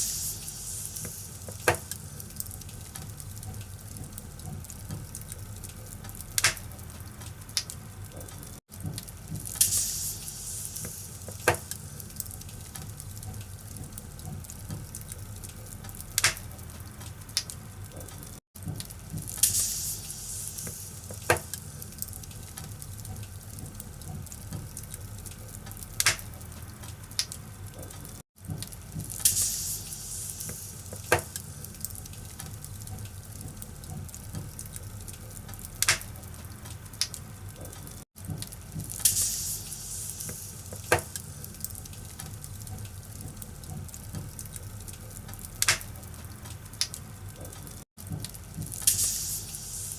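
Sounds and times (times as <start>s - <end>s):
logs crackling and popping: 0.0s - 49.7s
fire rumbling and hissing: 0.0s - 49.9s.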